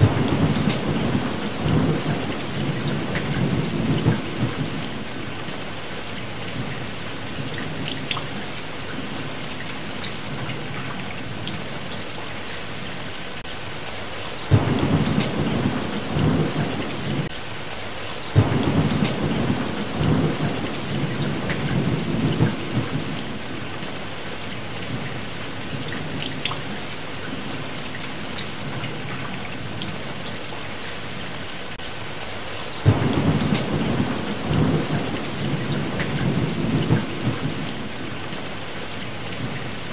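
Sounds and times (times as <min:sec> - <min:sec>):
thunder rumbling: 0:00.0 - 0:05.3, 0:14.5 - 0:17.3, 0:18.4 - 0:23.8, 0:32.8 - 0:38.2
heavy rain: 0:00.0 - 0:39.9.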